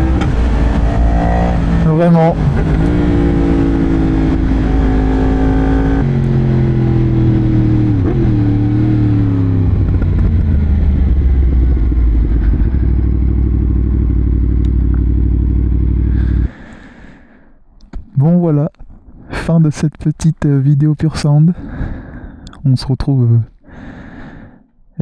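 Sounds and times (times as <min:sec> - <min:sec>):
motorcycle engine revving: 0:00.0 - 0:16.5.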